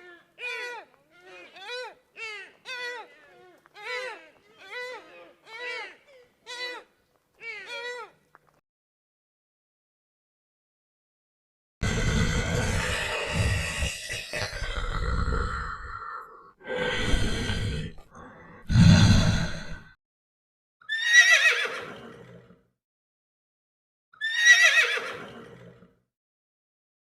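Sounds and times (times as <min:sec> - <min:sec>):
horse whinnying: 0:20.9 - 0:22.4, 0:24.2 - 0:25.8.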